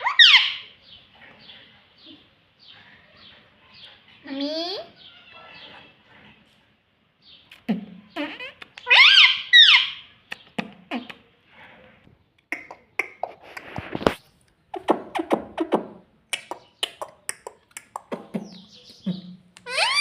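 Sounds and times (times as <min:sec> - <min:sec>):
parrot squawking: 0:00.0 - 0:00.8, 0:08.1 - 0:11.2, 0:18.1 - 0:20.0
parrot clicking and chattering: 0:10.3 - 0:11.3, 0:12.4 - 0:14.0, 0:14.7 - 0:20.0.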